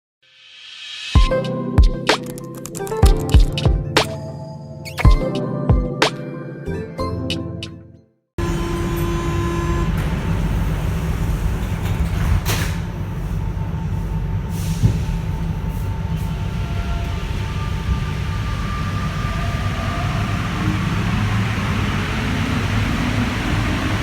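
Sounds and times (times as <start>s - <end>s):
train rumble: 8.4s - 24.0s.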